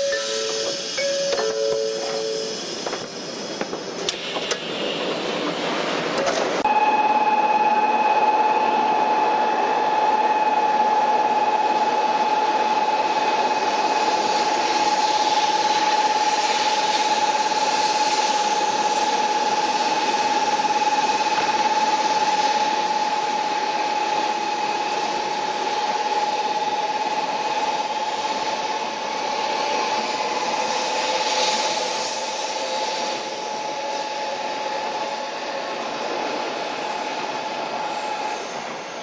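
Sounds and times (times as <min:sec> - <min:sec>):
train rushing: 0:00.0 - 0:06.7, 0:11.6 - 0:39.0
constant train whine: 0:00.0 - 0:39.0
train clicks: 0:00.1 - 0:04.7.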